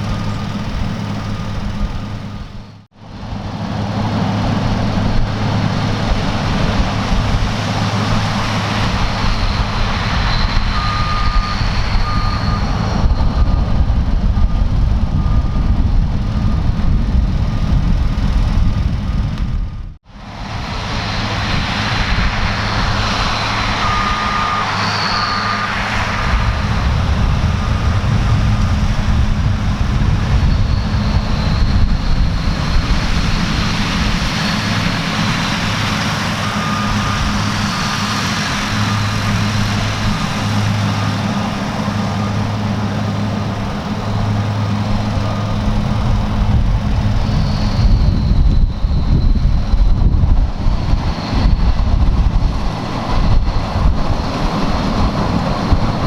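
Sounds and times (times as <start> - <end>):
diesel machinery engine drone: 0.0 - 56.0
high thin whine: 20.2 - 56.0.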